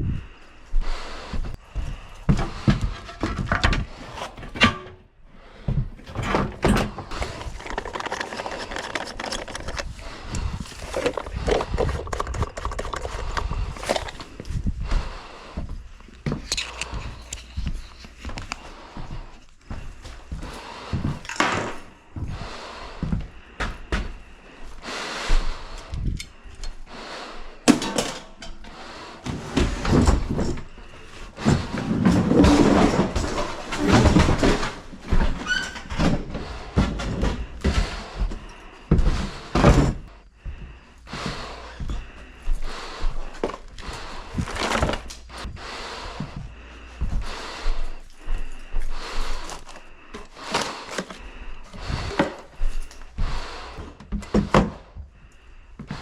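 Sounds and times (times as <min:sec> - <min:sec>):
things being handled and moved: 0:00.0 - 0:56.0
scraping and rustling: 0:06.1 - 0:14.4.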